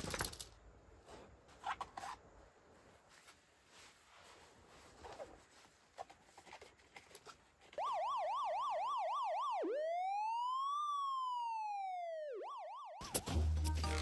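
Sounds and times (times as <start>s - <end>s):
electronic police siren: 7.8s - 13.3s.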